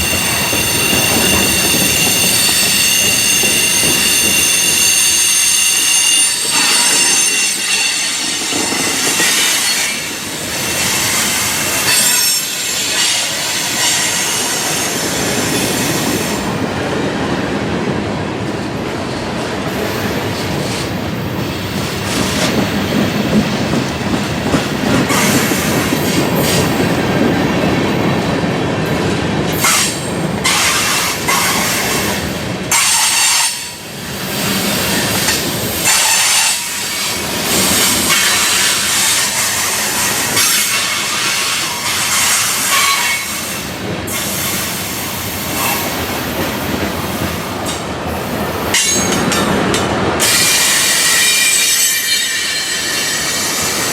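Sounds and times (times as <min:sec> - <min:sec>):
high-pitched wheel squeal: 0:00.0 - 0:10.0
freight train wheels clattering: 0:00.0 - 0:16.6, 0:18.4 - 0:53.9.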